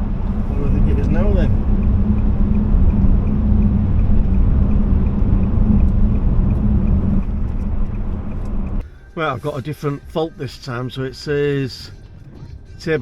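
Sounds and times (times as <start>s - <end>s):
diesel engine humming: 0.0s - 9.2s
road noise inside car: 0.0s - 13.0s.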